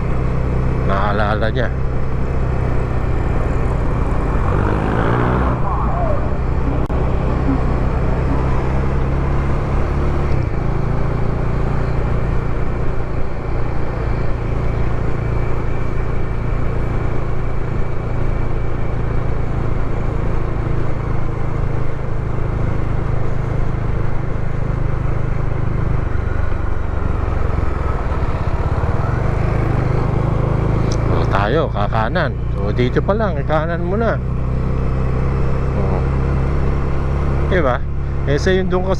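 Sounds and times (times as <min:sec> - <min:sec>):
motorcycle engine running: 0:00.0 - 0:38.9
road noise: 0:00.0 - 0:38.9.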